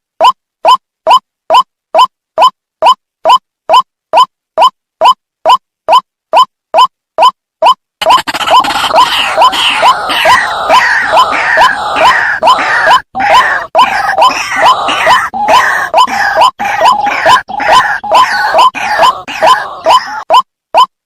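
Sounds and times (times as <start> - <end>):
chorus of harsh croaking calls: 8.0 - 20.9.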